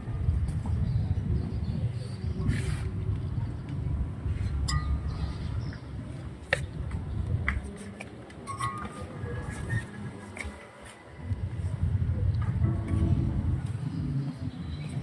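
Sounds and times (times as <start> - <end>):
low rumble: 11.8 - 14.7.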